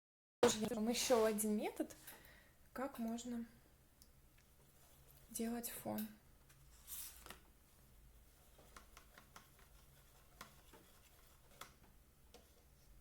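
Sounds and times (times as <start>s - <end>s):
soft rustle: 0.5s - 2.2s, 4.4s - 13.0s.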